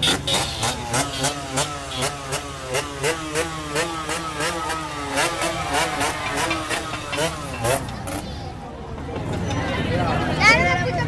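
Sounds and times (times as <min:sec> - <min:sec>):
small motorcycle engine revving: 0:00.0 - 0:08.6.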